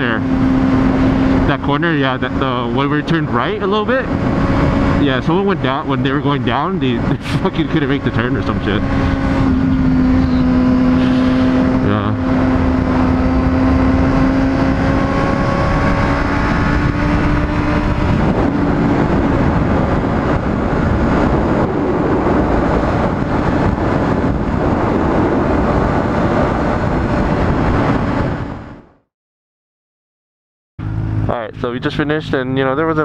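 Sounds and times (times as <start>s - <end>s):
motorcycle engine while riding: 0.0s - 29.0s, 30.8s - 33.0s
dense rushing noise: 3.7s - 29.0s.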